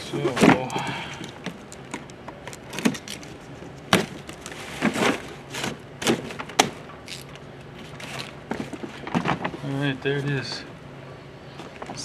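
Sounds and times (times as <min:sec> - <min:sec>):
cardboard scraping rustles: 0:02.8 - 0:06.5.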